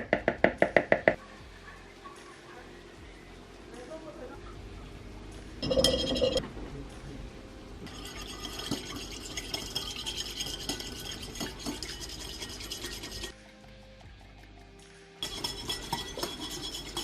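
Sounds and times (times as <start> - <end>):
utensil scraping a bowl: 7.9 - 13.4, 15.2 - 17.0.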